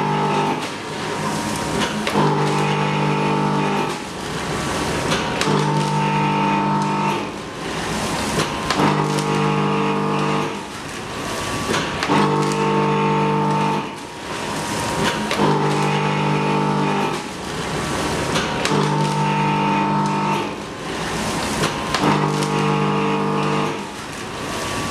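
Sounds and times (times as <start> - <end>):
machine motor hum: 0.0 - 24.9
machine clicks: 18.3 - 20.6.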